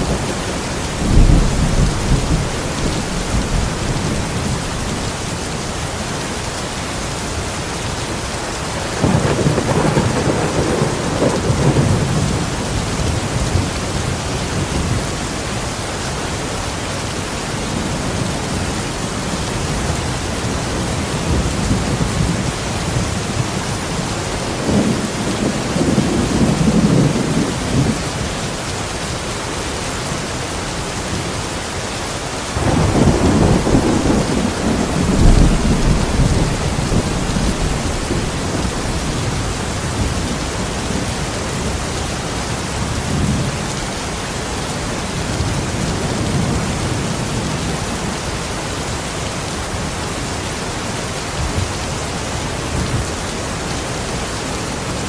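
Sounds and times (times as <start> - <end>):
rolling thunder: 0.0 - 5.0, 8.9 - 15.1, 32.6 - 41.0
heavy rain: 0.0 - 55.0.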